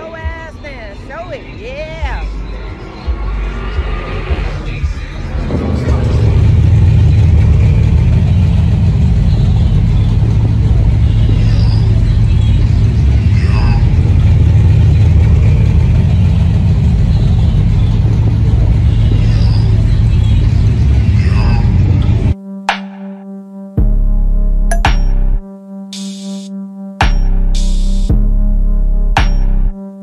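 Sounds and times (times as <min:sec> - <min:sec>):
low car rumble: 0:00.0 - 0:22.4.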